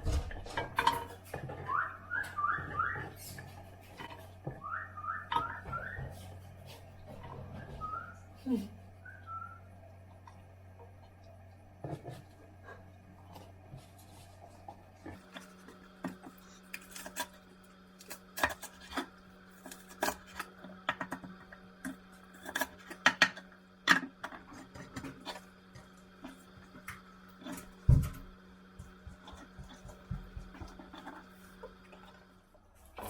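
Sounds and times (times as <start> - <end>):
steady low hum: 0.0 - 33.0
dishes and utensils clinking: 0.5 - 1.8.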